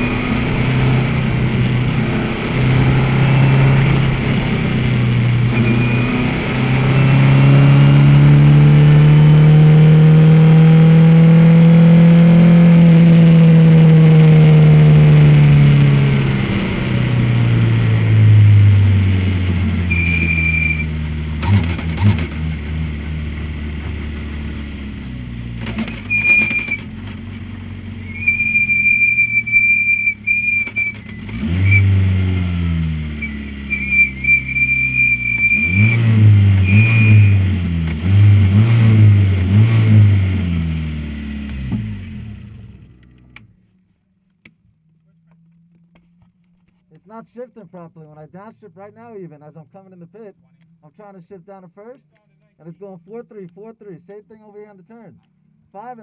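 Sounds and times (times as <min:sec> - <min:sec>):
race car engine running: 0:00.0 - 0:43.5.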